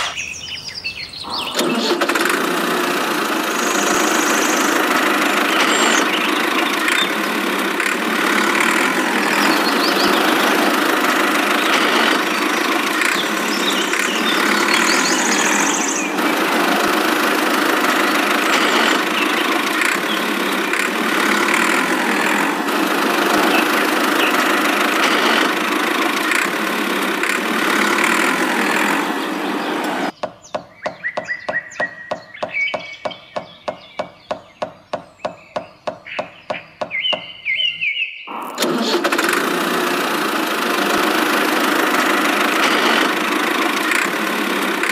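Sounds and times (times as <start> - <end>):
engine running steadily: 1.2 - 30.2, 38.3 - 44.9
rapid regular ticking: 2.0 - 29.5, 39.1 - 44.9.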